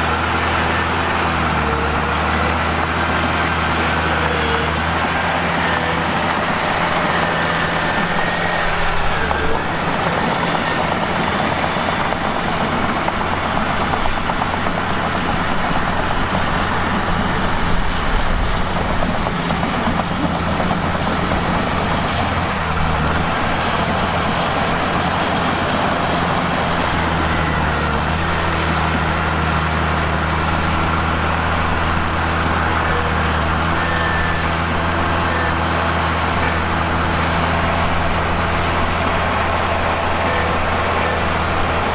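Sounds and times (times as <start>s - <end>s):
bulldozer diesel engine running: 0.0s - 41.9s.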